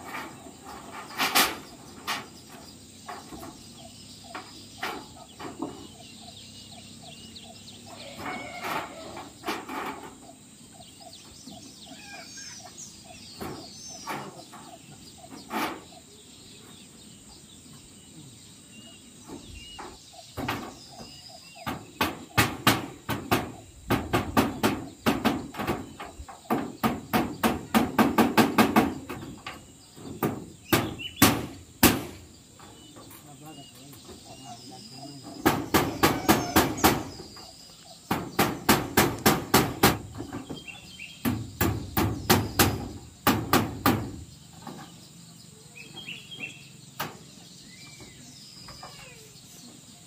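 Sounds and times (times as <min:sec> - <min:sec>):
hammer nailing metal roofing: 0:20.3 - 0:32.7, 0:35.3 - 0:37.4, 0:38.1 - 0:40.6, 0:41.2 - 0:44.8.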